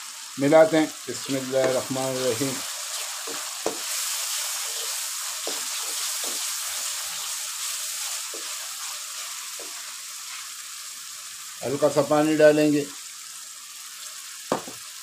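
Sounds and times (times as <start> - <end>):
sauce sizzling in hot oil: 0.0 - 15.0
spatula knocking against pan: 3.2 - 3.9, 5.4 - 6.5.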